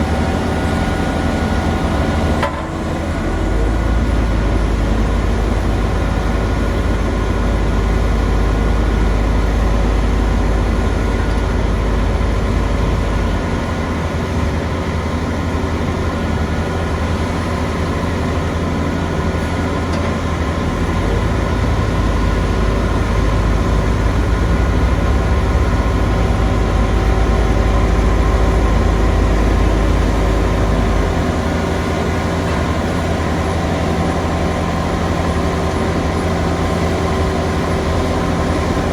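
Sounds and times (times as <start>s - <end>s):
heavy machinery engine rumbling: 0.0s - 38.9s.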